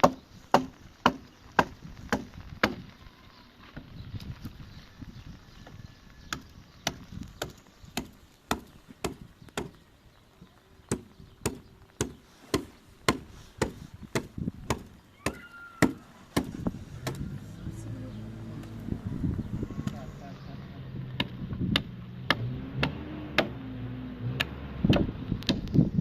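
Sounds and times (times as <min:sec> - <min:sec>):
sharp blows on wood: 0:00.0 - 0:02.8, 0:10.9 - 0:17.3, 0:21.2 - 0:23.6.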